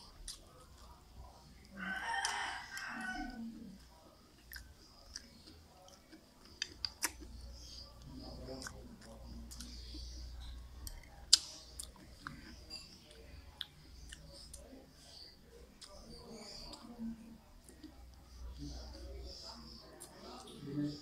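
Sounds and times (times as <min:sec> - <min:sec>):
close chewing with wet mouth sounds: 0:00.0 - 0:21.0.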